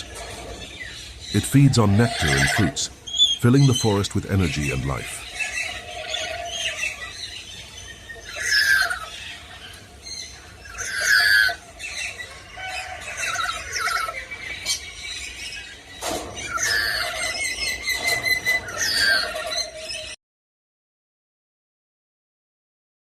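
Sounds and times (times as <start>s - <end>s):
parrot screeching: 1.8s - 3.4s, 5.2s - 15.7s, 16.4s - 20.2s.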